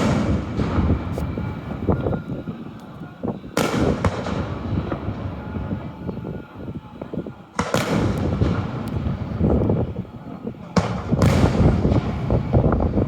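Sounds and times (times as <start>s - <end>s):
firework shell bursts: 0.0s - 2.1s, 3.6s - 5.2s, 10.7s - 12.8s
fireworks popping and crackling: 0.0s - 6.2s, 7.0s - 13.0s.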